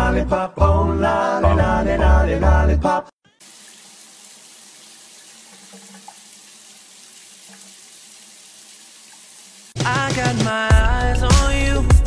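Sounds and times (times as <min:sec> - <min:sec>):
tap water running into bathtub: 0:03.4 - 0:09.8
loud music with a beat: 0:09.8 - 0:12.0.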